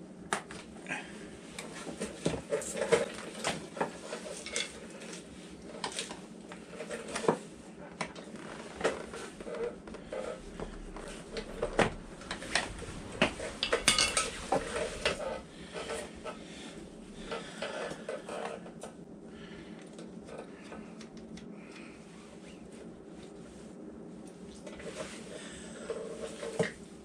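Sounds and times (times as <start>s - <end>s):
metal tools clinking against metal: 13.6s - 14.4s.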